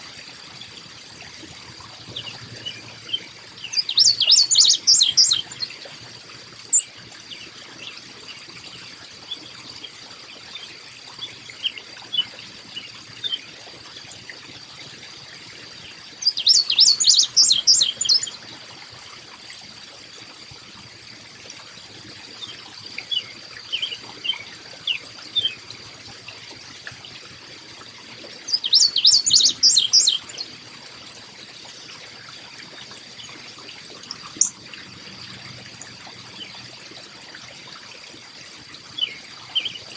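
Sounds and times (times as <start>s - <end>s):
water trickling: 0.0s - 39.9s
songbird chirping: 2.1s - 5.7s, 16.2s - 18.4s, 28.5s - 30.5s.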